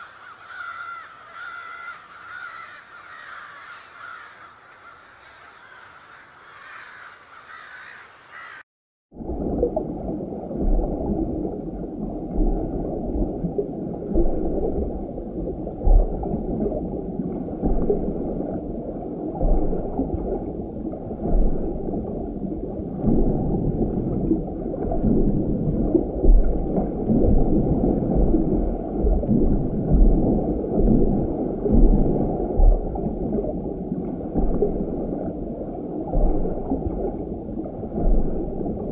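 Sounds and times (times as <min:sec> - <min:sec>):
muffled aquarium water gurgling: 0:09.1 - 0:38.9.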